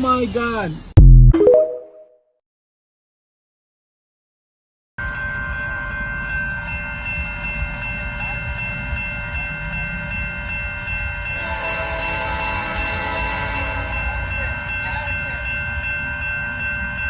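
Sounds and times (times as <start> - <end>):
high-pitched tones: 1.0 - 2.2
train rumbling: 5.0 - 17.0.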